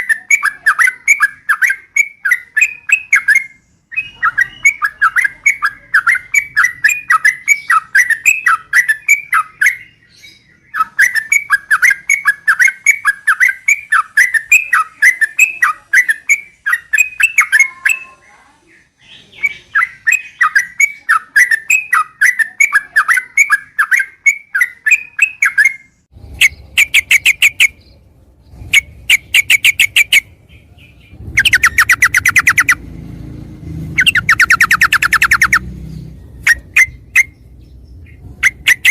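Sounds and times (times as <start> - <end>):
rattling bird trills: 0.0 - 18.2, 19.4 - 38.9
bulbul song chattering notes: 20.1 - 33.0, 33.9 - 35.8, 36.4 - 38.9.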